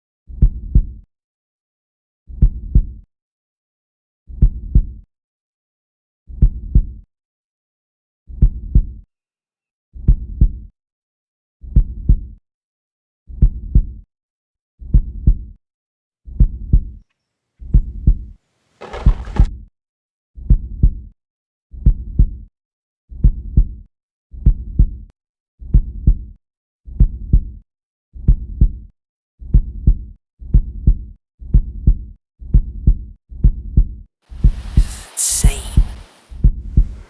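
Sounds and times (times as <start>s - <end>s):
heartbeat thumps: 34.3s - 35.1s, 35.7s - 37.0s
brief hiss: 34.3s - 37.0s.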